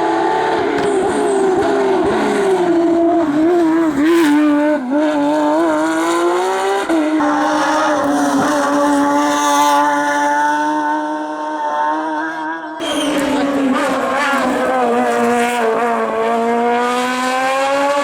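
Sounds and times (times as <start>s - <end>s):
race car engine running hard: 12.8s - 18.0s.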